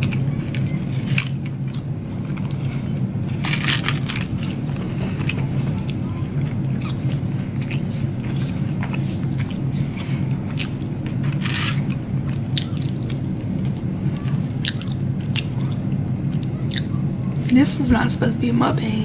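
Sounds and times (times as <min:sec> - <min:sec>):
person biting and chewing: 0:00.0 - 0:16.9
low hum: 0:00.0 - 0:19.0.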